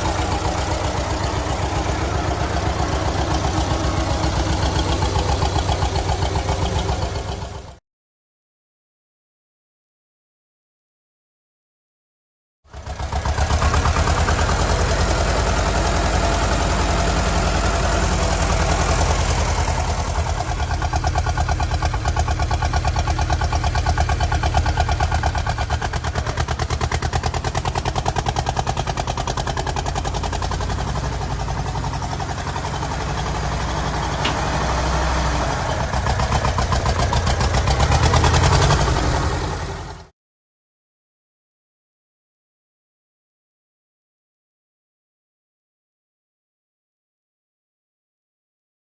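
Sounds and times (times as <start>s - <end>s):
tractor engine running: 0.0s - 7.8s, 12.7s - 40.1s.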